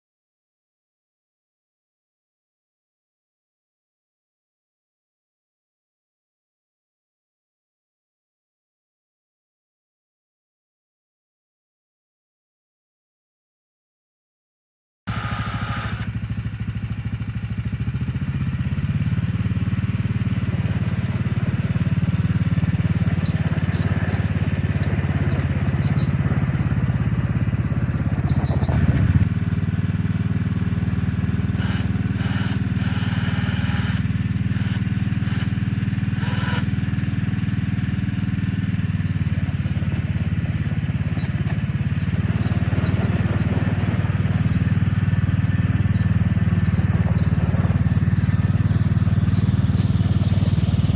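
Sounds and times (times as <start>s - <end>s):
small gasoline engine running: 15.1s - 50.9s.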